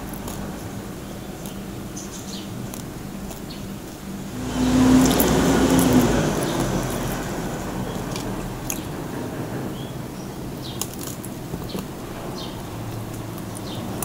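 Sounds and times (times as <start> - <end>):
crunchy chewing: 0.0 - 9.0, 10.6 - 14.0
steady low hum: 0.0 - 14.0
rushing noise: 4.1 - 13.4.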